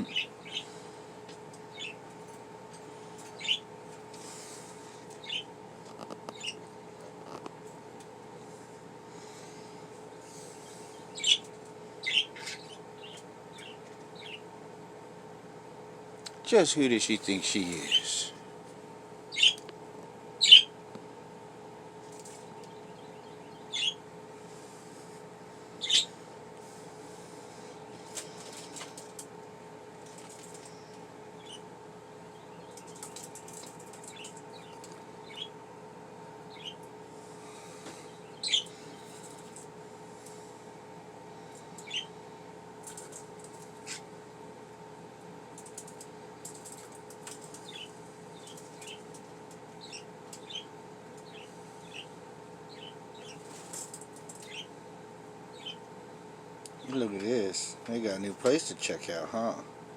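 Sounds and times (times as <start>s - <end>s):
budgerigar chirping: 0.0s - 0.7s, 1.7s - 2.0s, 3.4s - 3.7s, 5.2s - 5.5s, 6.3s - 6.6s, 11.1s - 11.4s, 12.0s - 14.4s, 19.3s - 19.6s, 20.4s - 20.8s, 23.5s - 24.0s, 25.8s - 26.1s, 31.4s - 31.6s, 34.1s - 35.6s, 36.5s - 36.8s, 38.3s - 38.7s, 41.8s - 42.1s, 47.6s - 49.0s, 49.8s - 52.1s, 52.7s - 53.4s, 54.4s - 54.7s, 55.5s - 55.8s
budgies chirping softly: 0.0s - 0.8s, 1.6s - 2.0s, 3.2s - 5.5s, 6.2s - 6.6s, 10.2s - 14.5s, 17.4s - 18.3s, 19.3s - 19.7s, 20.4s - 20.8s, 22.2s - 24.0s, 25.8s - 26.2s, 30.2s - 35.6s, 36.4s - 39.6s, 41.5s - 42.2s, 45.6s - 54.8s, 55.5s - 55.9s
steady background hum: 0.0s - 59.9s.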